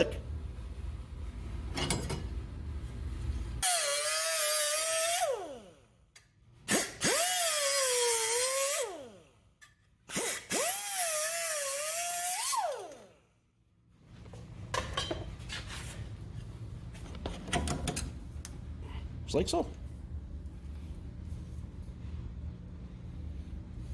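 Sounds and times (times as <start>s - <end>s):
cut-off tool whining on metal: 3.6s - 5.7s.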